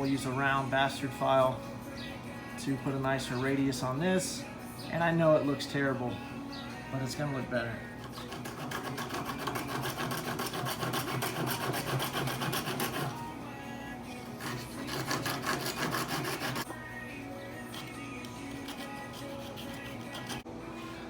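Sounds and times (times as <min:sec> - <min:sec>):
hand file rasping on wood: 0:08.0 - 0:13.2, 0:14.4 - 0:16.7, 0:17.7 - 0:20.4.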